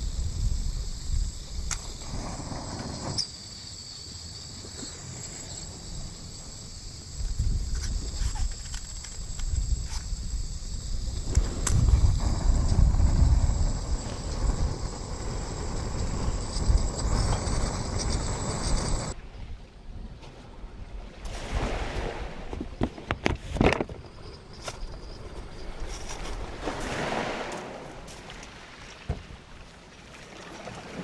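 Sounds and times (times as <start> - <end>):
wind buffeting microphone: 0.0 - 3.2, 5.8 - 20.2.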